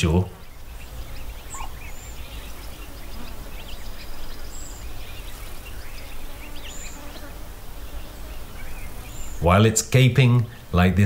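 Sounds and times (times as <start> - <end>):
bird chirps and whistles: 1.4 - 2.1.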